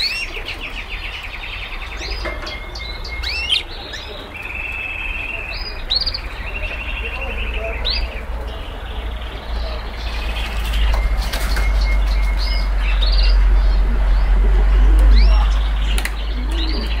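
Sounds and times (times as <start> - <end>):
small birds chirping: 0.0 - 17.0
low rumble: 11.9 - 17.0
sharp clicks: 15.9 - 16.6.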